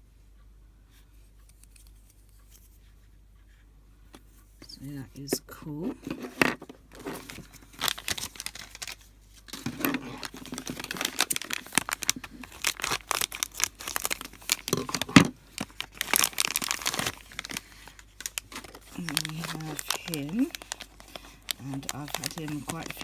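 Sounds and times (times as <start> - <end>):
foil bag tearing and crinkling: 6.9 - 23.0.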